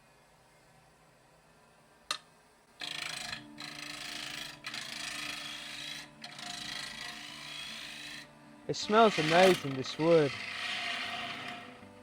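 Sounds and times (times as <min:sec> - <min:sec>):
lathe tool scraping wood: 0:02.8 - 0:12.0.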